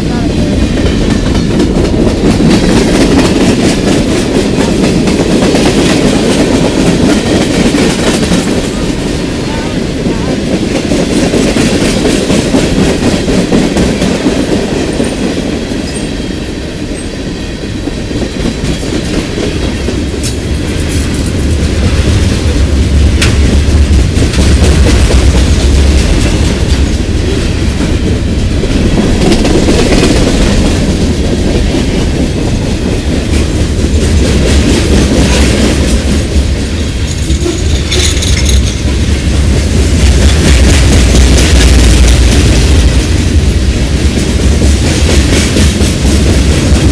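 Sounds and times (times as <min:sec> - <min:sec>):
freight train rumbling past: 0:00.0 - 0:46.9
wheels clacking over rail joints: 0:18.2 - 0:43.1.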